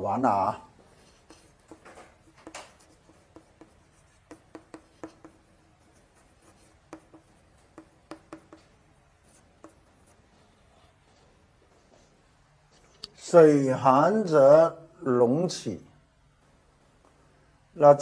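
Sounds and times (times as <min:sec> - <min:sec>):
writing on a board: 0:00.7 - 0:11.3.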